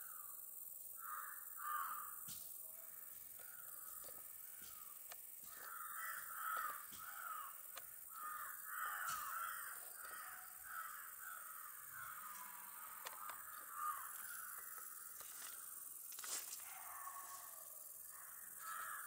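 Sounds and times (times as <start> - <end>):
bird calling: 3.4 - 15.7
faint clicks: 13.0 - 13.7.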